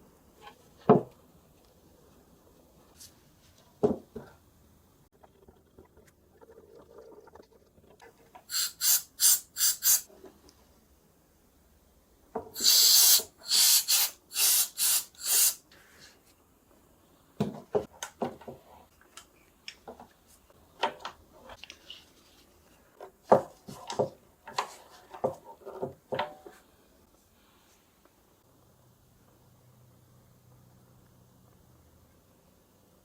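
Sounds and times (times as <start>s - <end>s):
short hissing strokes on wood: 8.5s - 10.1s, 12.6s - 16.0s.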